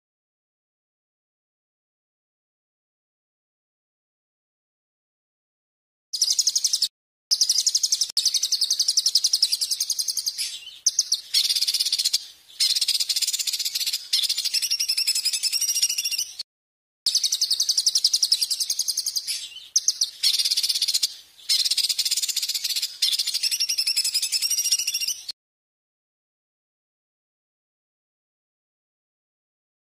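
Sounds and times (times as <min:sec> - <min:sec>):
songbird buzzy trills: 0:06.2 - 0:16.4, 0:17.1 - 0:25.3.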